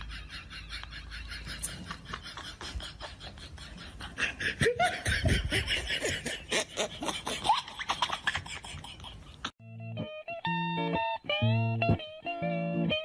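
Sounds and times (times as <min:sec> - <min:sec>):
people laughing: 0:00.0 - 0:09.5.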